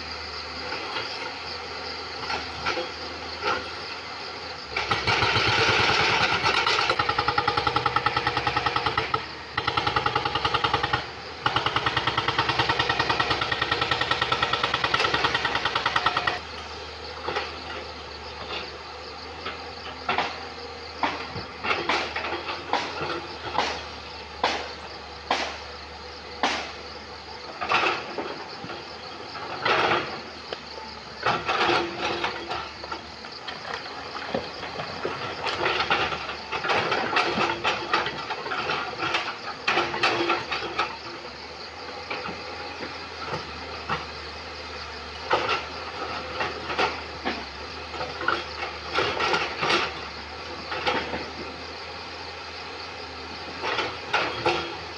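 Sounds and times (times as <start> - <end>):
excavator engine running: 0.0 - 54.9.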